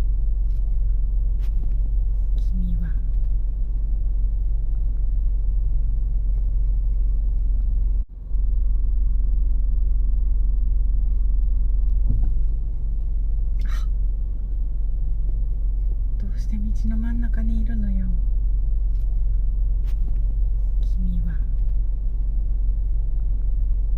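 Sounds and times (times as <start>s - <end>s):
vehicle engine idling: 0.0s - 23.9s.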